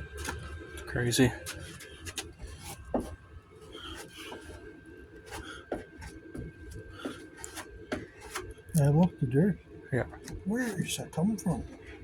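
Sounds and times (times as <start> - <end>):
steady background hum: 0.0 - 12.0
spreader scraping body filler: 1.4 - 8.6, 10.2 - 11.8.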